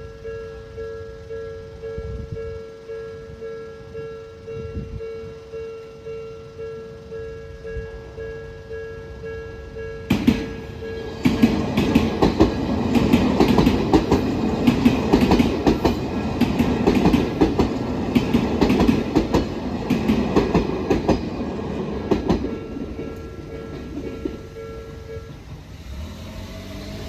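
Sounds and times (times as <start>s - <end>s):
train wheels clattering over rail joints: 10.1s - 27.0s.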